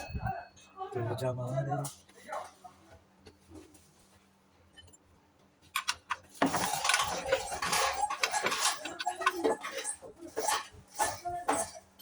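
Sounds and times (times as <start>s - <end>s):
metal clinking and clattering: 5.8s - 12.0s.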